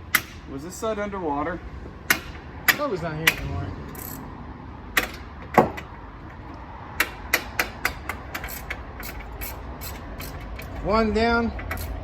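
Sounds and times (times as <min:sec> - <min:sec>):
metal knocks on brake assembly: 0:05.0 - 0:05.9.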